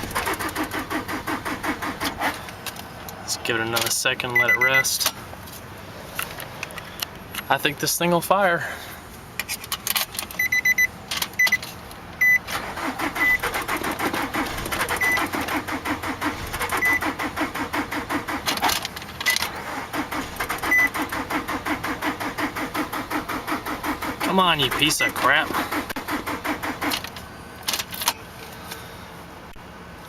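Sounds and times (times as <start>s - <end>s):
starter motor cranking: 0.0s - 2.5s, 12.4s - 27.2s
electronic chime beeping: 4.4s - 4.9s.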